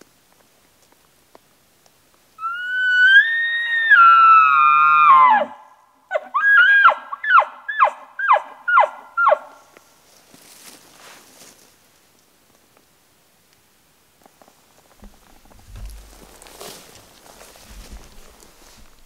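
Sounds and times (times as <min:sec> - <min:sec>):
elk bugling: 0:02.4 - 0:09.7.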